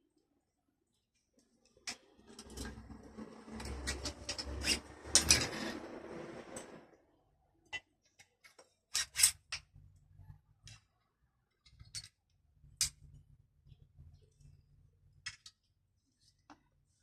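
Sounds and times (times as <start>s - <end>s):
small tools clicking and knocking: 3.5s - 5.6s, 7.6s - 10.0s, 11.5s - 13.2s, 15.2s - 15.7s.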